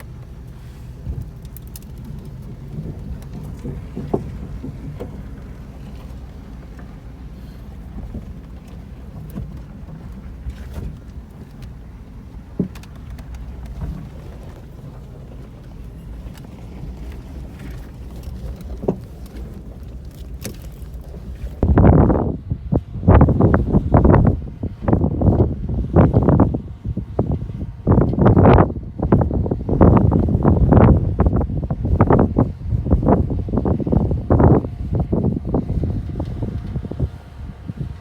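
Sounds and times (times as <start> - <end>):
rocks knocking under tyres: 0.0 - 21.7
truck engine running at low speed: 0.0 - 38.0.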